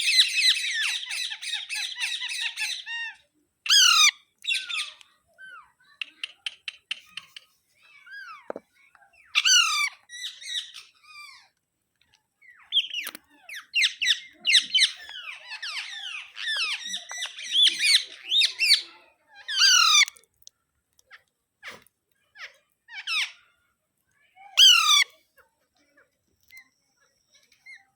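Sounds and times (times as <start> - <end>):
parakeet squawking: 3.7 - 4.9, 9.4 - 11.3, 19.5 - 20.1, 24.6 - 25.0.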